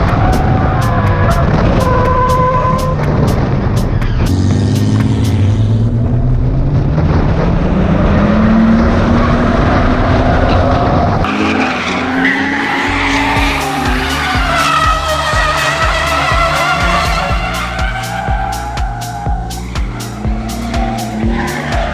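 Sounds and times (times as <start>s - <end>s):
music with steady beat: 0.0s - 5.6s, 12.5s - 21.9s
car engine revving hard: 0.0s - 21.9s
tyres skidding: 0.0s - 21.9s.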